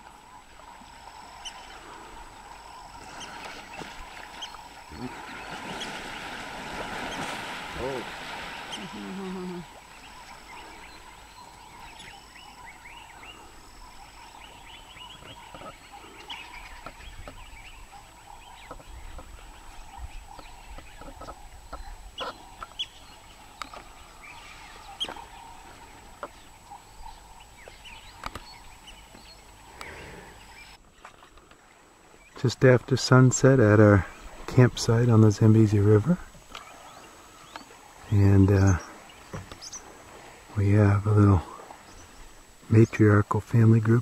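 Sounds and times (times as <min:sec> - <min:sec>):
wild birds chirping: 0:00.0 - 0:44.0.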